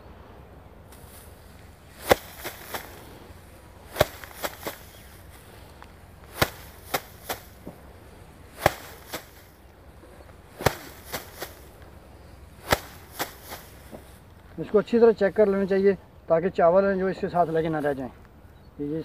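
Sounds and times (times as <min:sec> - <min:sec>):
rice stalks beaten on hard surface: 0:00.9 - 0:14.3.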